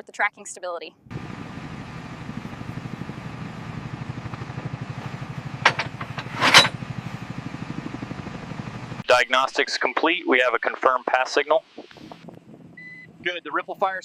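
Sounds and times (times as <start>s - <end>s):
machine throbbing: 1.1s - 9.0s.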